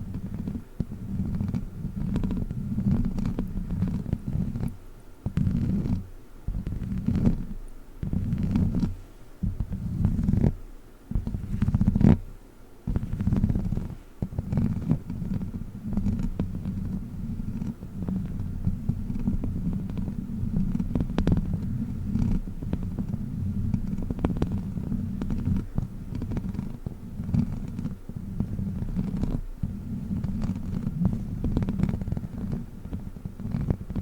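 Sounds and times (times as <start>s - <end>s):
rubber toy crackling: 12.9s - 34.0s.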